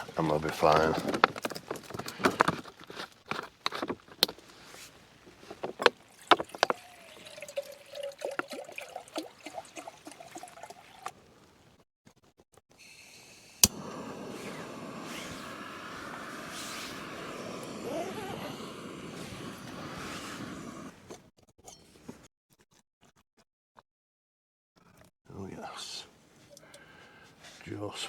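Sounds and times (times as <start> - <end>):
water poured into a pot: 5.8 - 11.4
gas stove burner hissing: 12.8 - 21.1
stove igniter click: 13.6 - 17.8.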